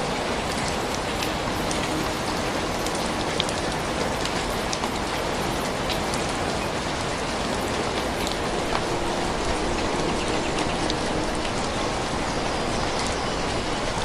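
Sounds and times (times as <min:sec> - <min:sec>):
raindrops ticking: 0:00.0 - 0:14.0
steady rain hiss: 0:00.0 - 0:14.0.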